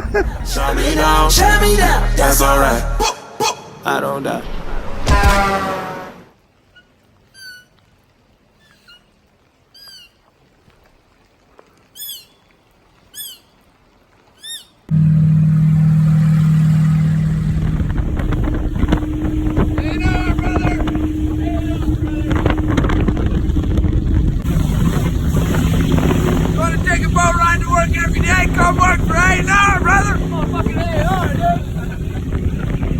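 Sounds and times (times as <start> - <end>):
boat engine noise: 0.0 - 3.1, 14.9 - 32.9
short chirping calls: 9.8 - 10.2, 12.0 - 12.5, 14.4 - 14.8
wind hiss: 14.9 - 32.9.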